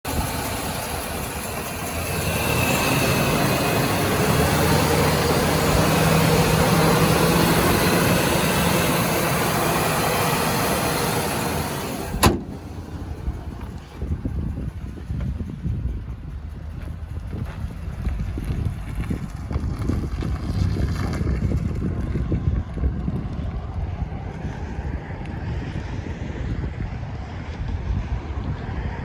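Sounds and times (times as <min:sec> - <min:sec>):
broad rush of noise: 0:00.0 - 0:15.2
pickup truck engine running: 0:00.0 - 0:24.1.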